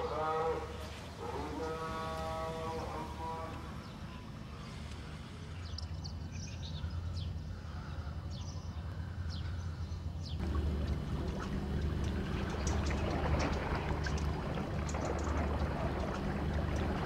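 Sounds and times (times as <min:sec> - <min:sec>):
small birds chirping: 0:03.8 - 0:17.0
steady low rumble: 0:09.0 - 0:17.0.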